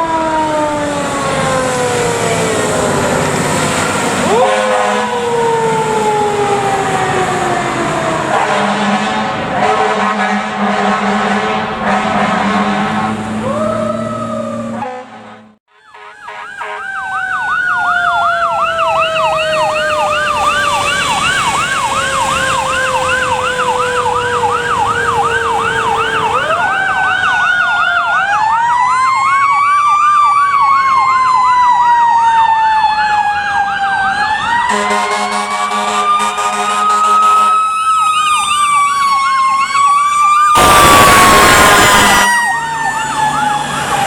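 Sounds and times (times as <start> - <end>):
horn blast: 4.2 - 5.2, 8.3 - 13.4, 14.8 - 17.0, 34.7 - 37.6, 40.6 - 42.6
electronic siren yelping: 13.1 - 14.9, 15.8 - 44.0.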